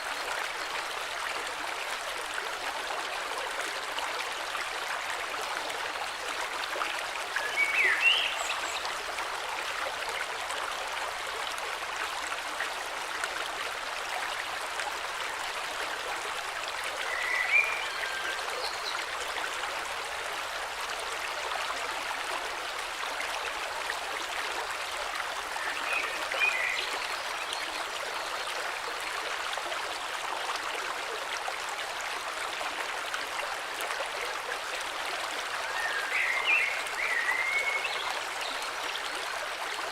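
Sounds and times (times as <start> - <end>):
river water rushing: 31.3 - 39.9.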